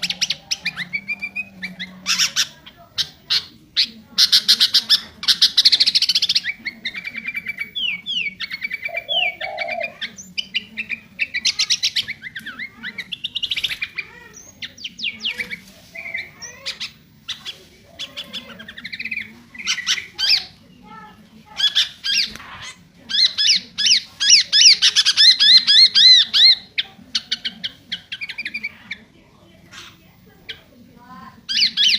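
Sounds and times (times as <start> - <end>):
bird singing trills and whistles: 0.0 - 17.5.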